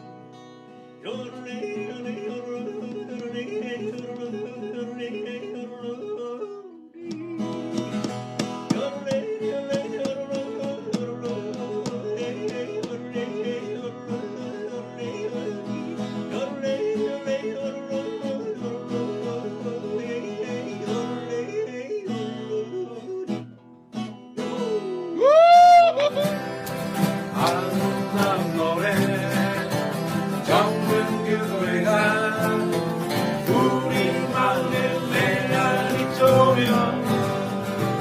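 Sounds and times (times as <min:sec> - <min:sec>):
acoustic guitar strumming: 0:00.0 - 0:06.4, 0:07.1 - 0:25.3, 0:26.0 - 0:38.0
person singing: 0:01.0 - 0:23.5, 0:24.4 - 0:38.0.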